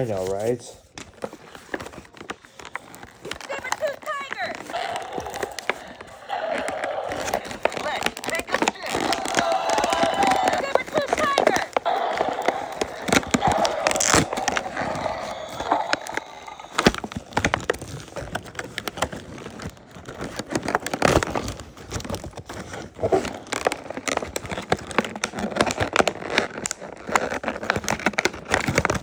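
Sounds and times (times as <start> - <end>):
plastic and cardboard crackling: 0.0 - 29.0.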